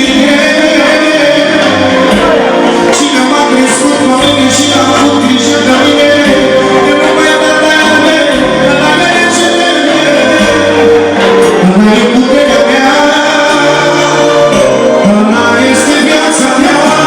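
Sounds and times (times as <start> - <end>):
band music: 0.0 - 17.0
person singing: 0.0 - 17.0.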